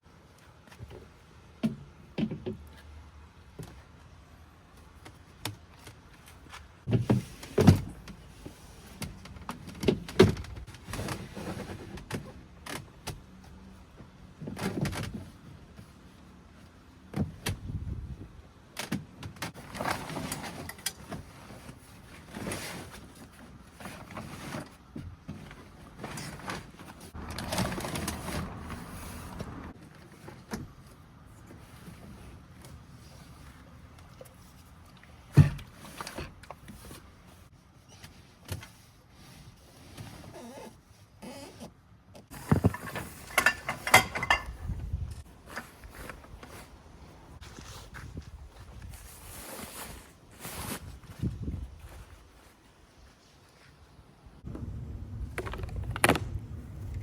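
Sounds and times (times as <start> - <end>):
objects knocking and rustling: 42.3 - 46.7.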